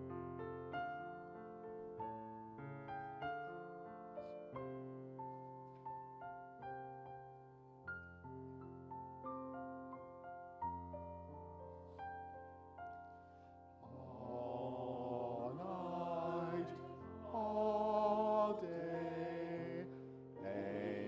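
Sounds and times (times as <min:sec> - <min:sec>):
slow piano notes: 0:00.0 - 0:21.0
person singing long notes: 0:13.8 - 0:21.0.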